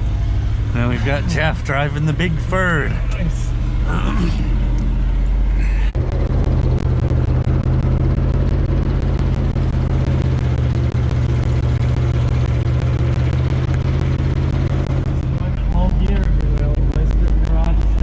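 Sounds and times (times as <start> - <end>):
truck engine droning: 0.0 - 18.0
fast even ticking: 6.0 - 18.0.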